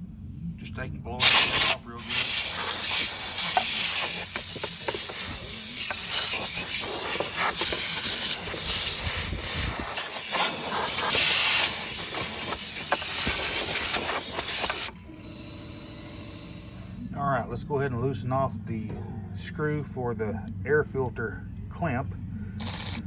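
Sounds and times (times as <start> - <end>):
compressed air blow gun hissing: 1.2 - 15.0.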